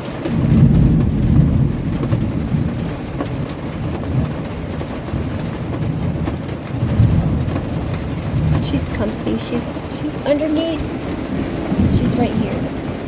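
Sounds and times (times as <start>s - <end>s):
rain on a van roof: 0.0s - 13.0s
thunder rumbling: 0.0s - 13.0s.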